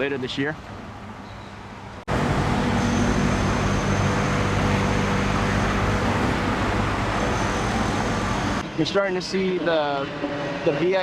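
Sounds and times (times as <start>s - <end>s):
road traffic noise: 0.0s - 11.0s
low engine hum: 0.6s - 8.7s.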